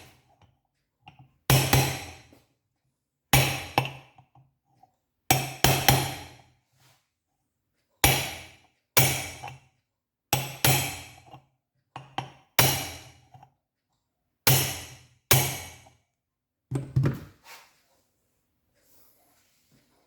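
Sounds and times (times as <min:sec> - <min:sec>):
hammer knocking on metal: 0:16.7 - 0:17.3.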